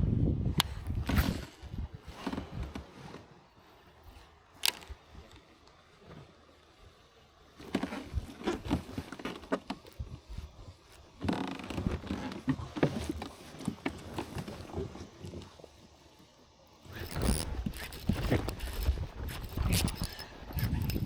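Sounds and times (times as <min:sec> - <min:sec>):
rustling: 0:16.9 - 0:21.0.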